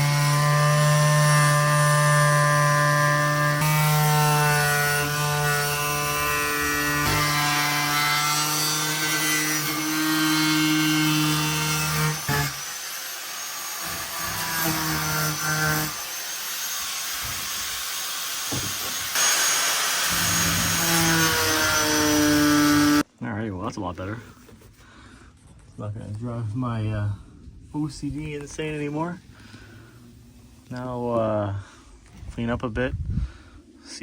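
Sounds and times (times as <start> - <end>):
angle grinder cutting fiberglass: 0.0 - 23.0.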